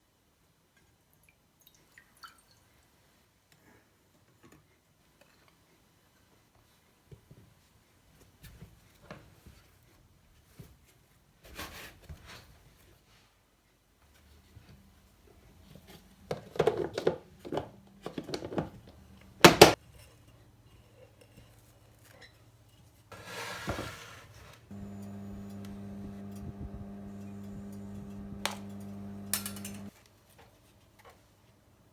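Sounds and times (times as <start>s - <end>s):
steady hum: 24.7s - 29.9s
dishes and utensils clinking: 28.6s - 29.9s.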